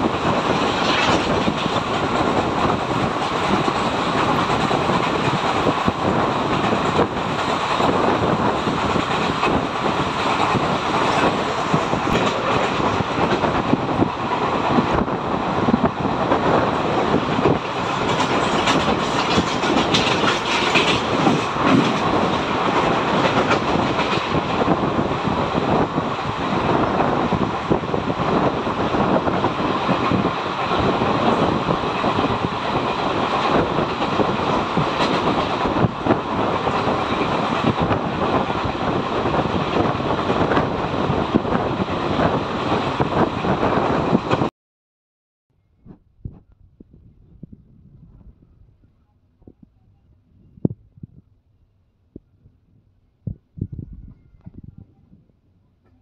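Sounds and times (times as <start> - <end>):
train wheels on rails: 0.0 - 44.5
wheels clicking over track: 17.4 - 24.7.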